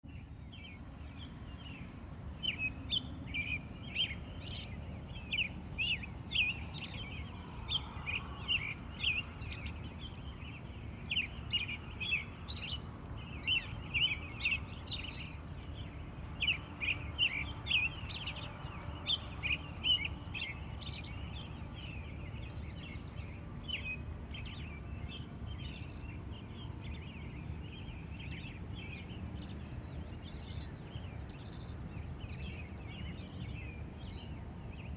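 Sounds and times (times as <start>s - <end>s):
birds chirping: 0.1s - 26.0s
low background rumble: 0.1s - 34.8s
steady high hum: 0.1s - 34.9s.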